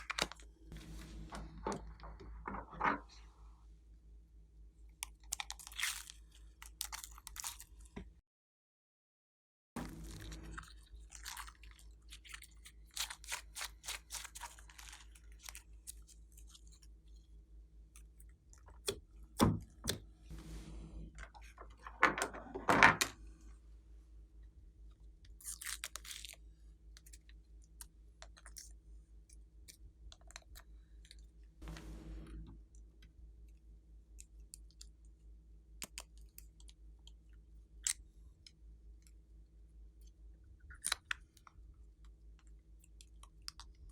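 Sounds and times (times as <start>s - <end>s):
faint steady hum: 0.0s - 5.2s, 9.8s - 12.8s, 26.4s - 43.9s.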